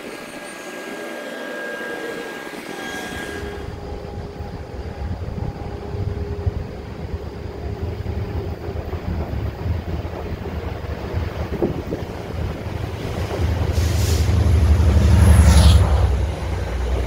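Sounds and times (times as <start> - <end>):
distant train rumble: 0.0 - 17.0
wind buffeting the microphone: 3.6 - 15.0.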